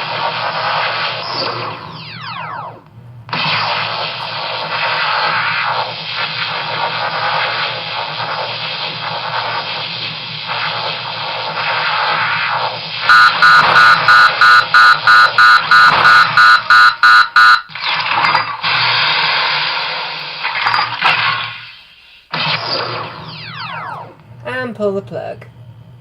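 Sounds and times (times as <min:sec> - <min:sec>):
loud alarm beeps: 0:13.0 - 0:17.8
low hum: 0:22.6 - 0:26.0.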